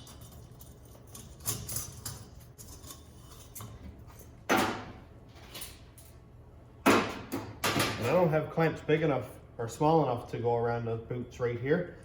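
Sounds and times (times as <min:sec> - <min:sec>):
metal parts clicking and knocking: 0:00.0 - 0:03.8
metal clank and rattle: 0:00.0 - 0:06.0.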